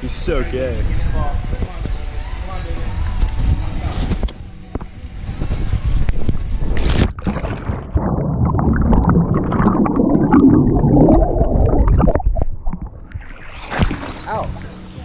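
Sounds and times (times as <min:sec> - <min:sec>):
underwater churning and bubbling: 0:06.7 - 0:14.4
water splash: 0:06.7 - 0:14.7.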